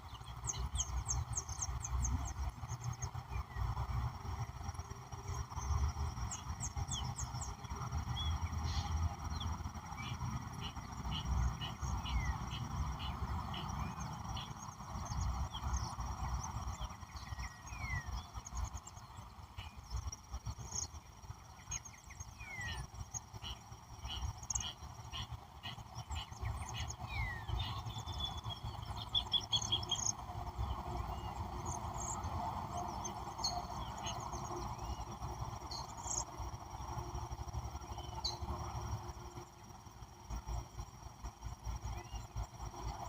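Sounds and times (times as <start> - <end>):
birds chirping and whistling: 21.7 - 30.2.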